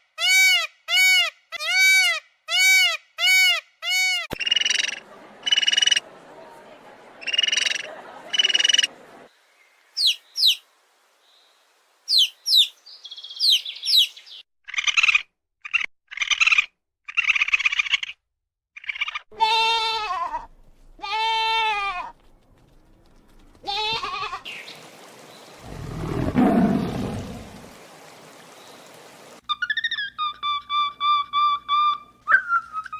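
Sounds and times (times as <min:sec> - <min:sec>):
long rising and falling calls: 0:10.0 - 0:10.6, 0:12.1 - 0:14.4, 0:24.5 - 0:30.2.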